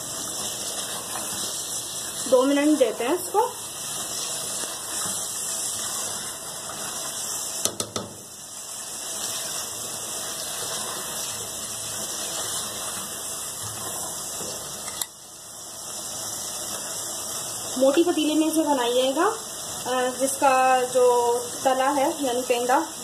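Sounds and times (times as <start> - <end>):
food sizzling in oil: 0.0 - 23.0
spatula scraping pot: 0.3 - 7.5, 9.2 - 15.0
spatula knocking on pot: 7.6 - 8.2.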